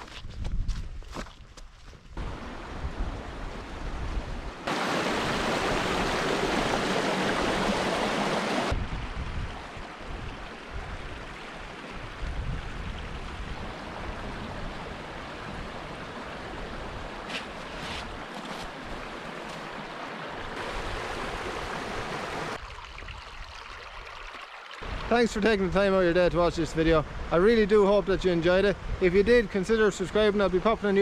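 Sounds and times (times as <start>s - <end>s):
rushing water: 2.2s - 29.0s
wind on microphone: 8.7s - 11.3s, 12.0s - 15.8s.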